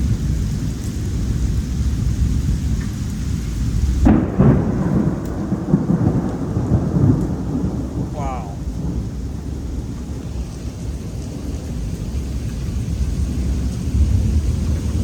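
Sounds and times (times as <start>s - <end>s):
rain hissing: 0.0s - 15.0s
thunder clap rumbling: 3.6s - 15.0s.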